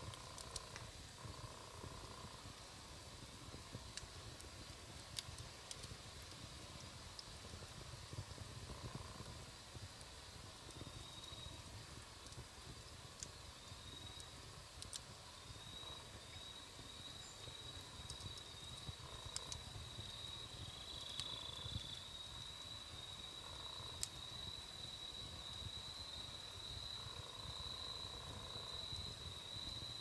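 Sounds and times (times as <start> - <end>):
campfire crackling and popping: 0.0 - 30.0.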